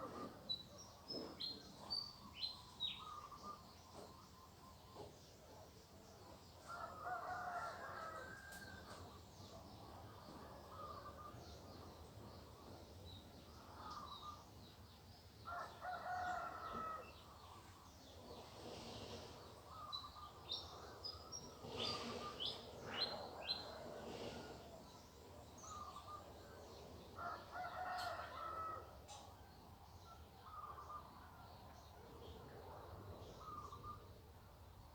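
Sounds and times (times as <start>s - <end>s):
small birds chirping: 0.1s - 6.8s, 9.4s - 29.2s
rooster crowing: 6.7s - 8.8s, 27.2s - 29.0s.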